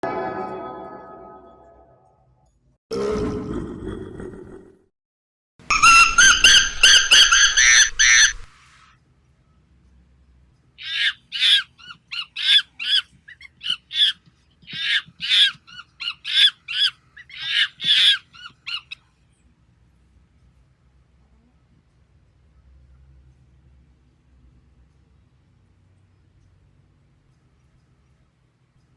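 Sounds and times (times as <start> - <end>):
high squawking calls: 5.7 - 8.5
shrill animal calls: 5.7 - 8.5, 10.8 - 13.0.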